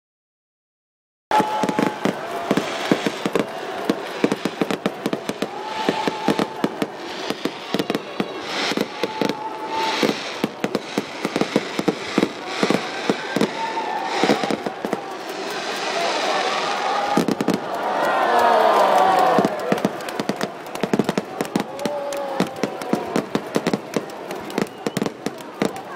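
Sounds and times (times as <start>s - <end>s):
firework whistles: 1.3s - 17.6s, 24.5s - 25.3s
firework bangs and crackling: 1.3s - 25.9s.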